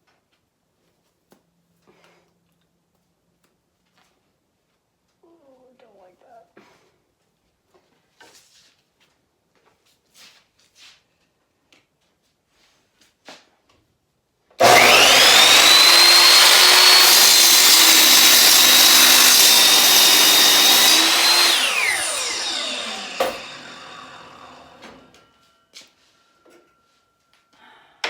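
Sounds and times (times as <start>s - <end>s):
electric miter saw whining: 14.6s - 25.4s.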